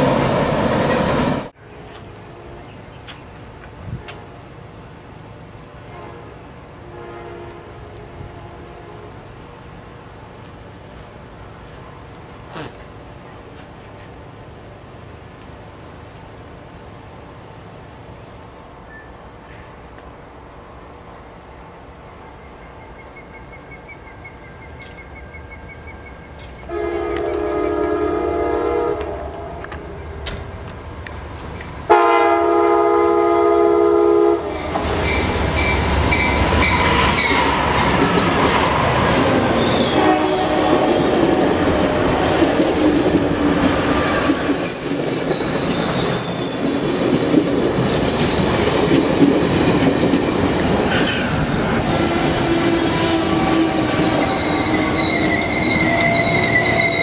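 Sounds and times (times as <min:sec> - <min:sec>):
train rumbling past: 0:00.0 - 0:57.0
train horn blasts: 0:05.9 - 0:09.2, 0:26.6 - 0:29.7, 0:31.9 - 0:35.2, 0:39.6 - 0:42.4, 0:51.9 - 0:57.0
high-pitched wheel squeal: 0:39.4 - 0:40.0, 0:43.8 - 0:48.4, 0:50.9 - 0:57.0.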